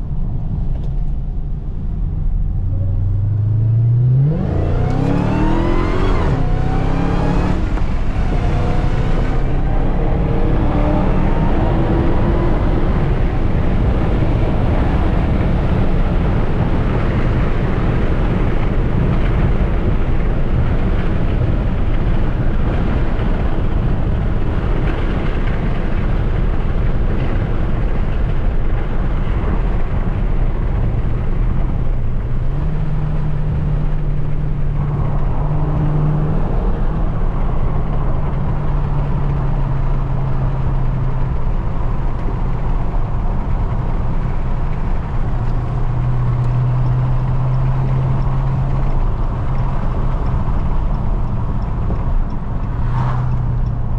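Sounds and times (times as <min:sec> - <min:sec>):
low hum: 0:00.0 - 0:40.6, 0:43.4 - 0:53.9
car engine and road noise: 0:00.0 - 0:53.9.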